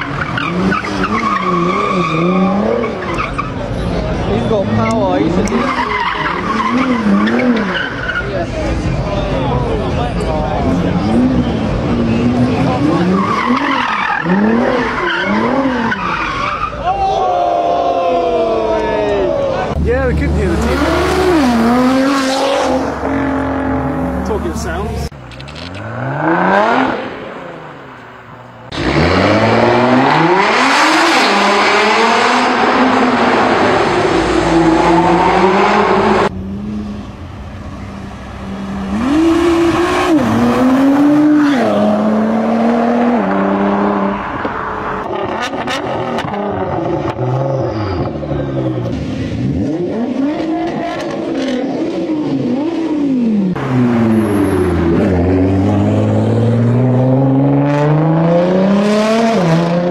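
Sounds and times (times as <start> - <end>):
car engine accelerating hard: 19.7 - 27.7, 28.7 - 59.9
car pulling away and passing: 19.7 - 59.9.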